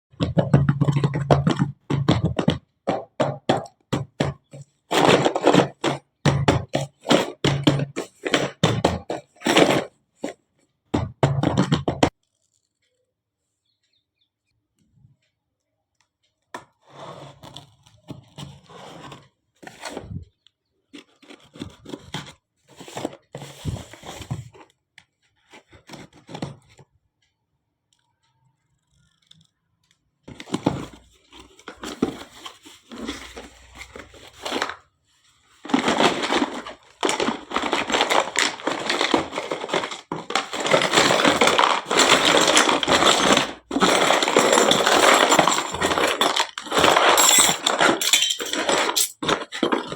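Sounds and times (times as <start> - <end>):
packaging crinkling and tearing: 31.1 - 49.9.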